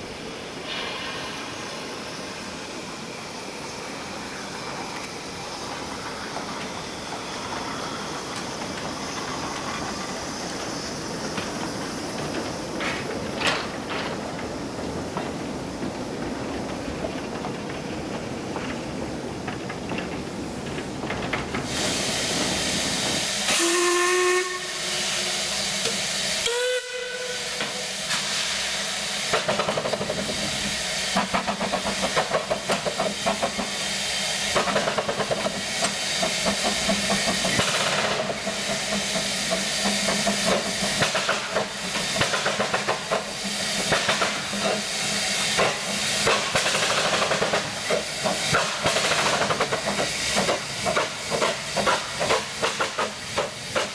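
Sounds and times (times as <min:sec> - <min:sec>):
hiss of escaping steam: 0:00.0 - 0:16.9, 0:21.5 - 0:53.9
steam locomotive exhaust chuffs: 0:20.6 - 0:53.9
steam whistle blasts: 0:23.1 - 0:28.6.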